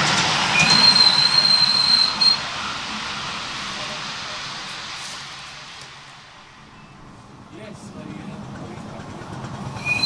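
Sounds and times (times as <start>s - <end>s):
train wheels rumbling on rails: 0.0s - 10.0s
high wheel squeal: 0.5s - 3.4s, 9.8s - 10.0s.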